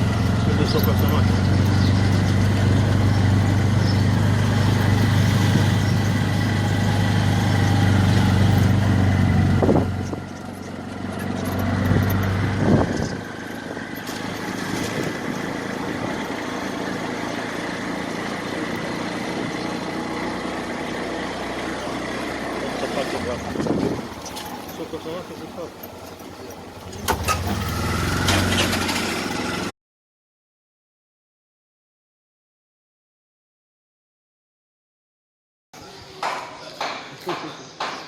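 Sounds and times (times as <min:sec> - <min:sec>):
engine idling: 0:00.0 - 0:29.7
outdoor ambience: 0:00.0 - 0:29.7, 0:35.8 - 0:38.0.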